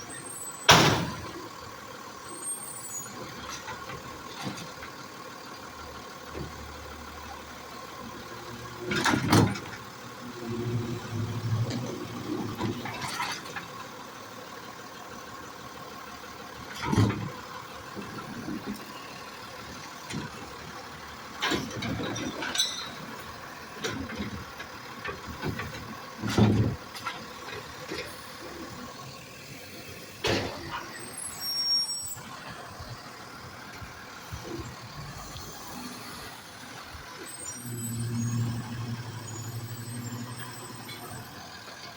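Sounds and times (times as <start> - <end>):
truck engine running: 0.0 - 41.9
high squeal: 2.3 - 3.2, 30.5 - 32.5, 37.2 - 41.5
bins banging and clattering: 23.8 - 28.2.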